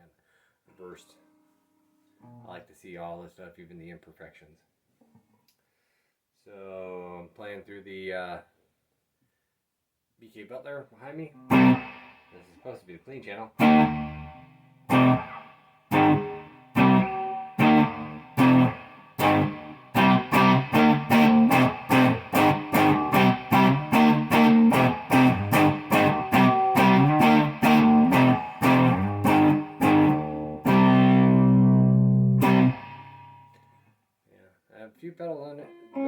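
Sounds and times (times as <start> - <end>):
clean electric guitar strumming: 11.4 - 12.4, 13.6 - 33.7, 35.6 - 36.0.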